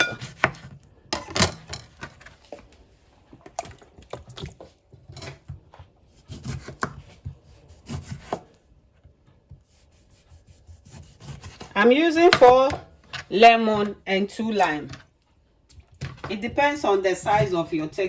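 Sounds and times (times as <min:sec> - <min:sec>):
knife cutting on a cutting board: 0:00.0 - 0:00.8, 0:05.2 - 0:08.6, 0:09.6 - 0:12.7.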